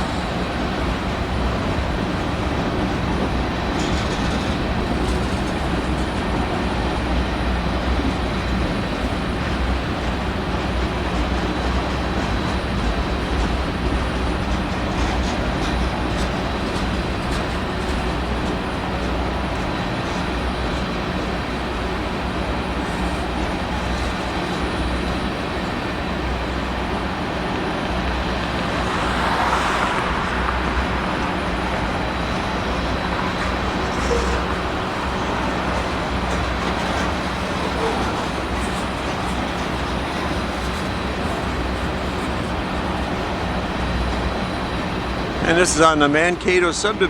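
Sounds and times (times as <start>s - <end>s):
low engine hum: 0.0s - 46.5s
freight train rumbling: 0.0s - 47.0s.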